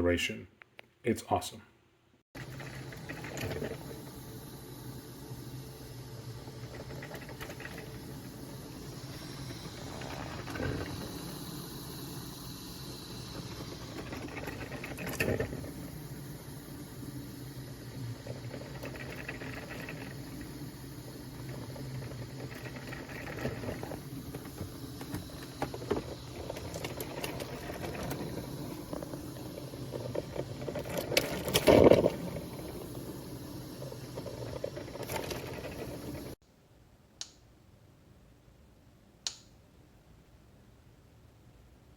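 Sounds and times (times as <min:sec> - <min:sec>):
coffee maker gurgling and hissing: 0:02.3 - 0:36.4
clatter: 0:06.6 - 0:08.6, 0:17.9 - 0:33.0, 0:33.9 - 0:36.4.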